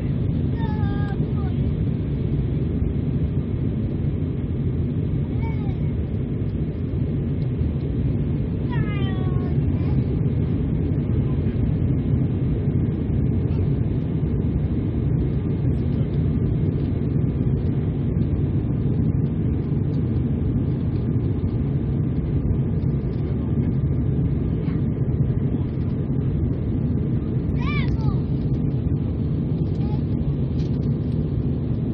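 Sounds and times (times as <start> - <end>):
airliner cabin engine rumble: 0.0 - 31.9.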